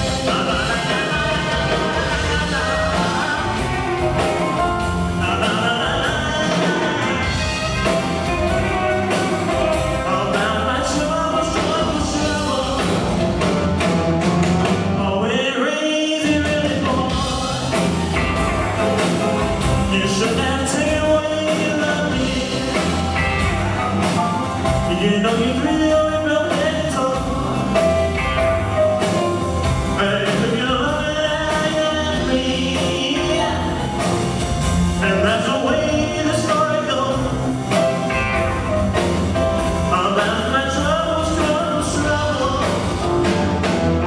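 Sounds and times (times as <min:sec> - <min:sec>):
person singing: 0:00.0 - 0:13.6, 0:14.9 - 0:43.8
live rock band playing: 0:00.0 - 0:15.4, 0:16.2 - 0:44.0.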